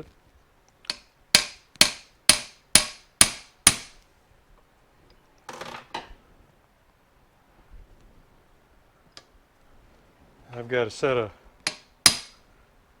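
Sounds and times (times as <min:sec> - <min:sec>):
hammer striking metal driver: 0:00.9 - 0:04.0, 0:11.7 - 0:12.4.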